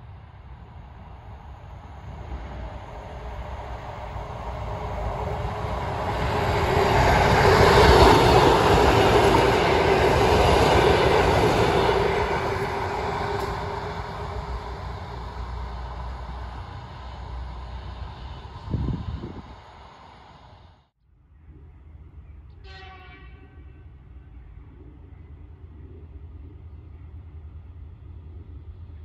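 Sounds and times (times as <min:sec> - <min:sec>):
diesel railcar engine passing: 0:00.0 - 0:29.0
train wheels on rails: 0:02.0 - 0:20.8.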